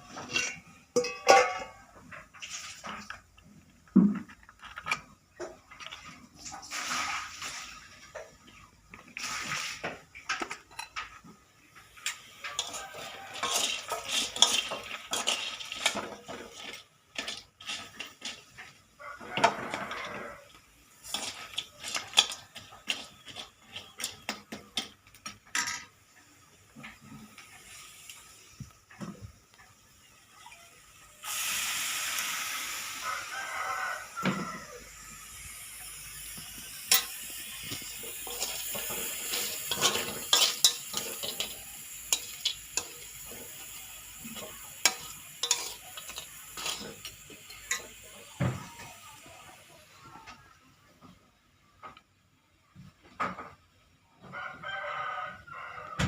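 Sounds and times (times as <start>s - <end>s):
dishes and pots clattering: 0.0s - 7.1s, 8.0s - 26.0s, 36.9s - 48.9s
steady hiss: 6.1s - 50.5s.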